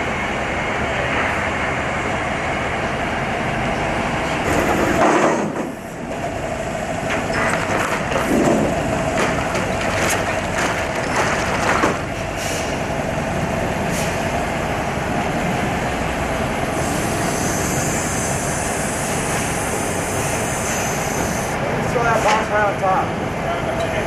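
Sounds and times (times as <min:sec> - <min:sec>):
factory machinery noise: 0:00.0 - 0:24.0
high hiss of air: 0:16.8 - 0:21.6.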